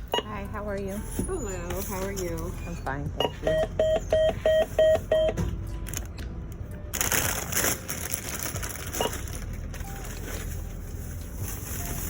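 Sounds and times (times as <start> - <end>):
checkout scanner beep: 0.0 - 0.6, 1.4 - 5.4, 8.9 - 10.2
crinkly rustling of bags: 6.9 - 12.0.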